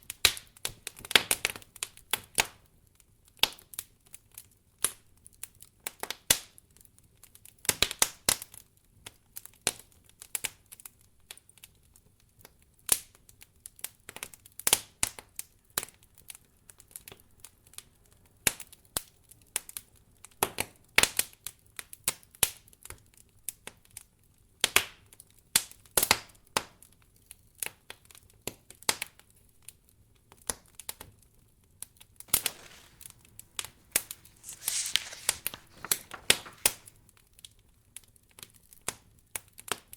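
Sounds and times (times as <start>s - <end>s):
wood fire crackling and popping: 32.3s - 34.5s.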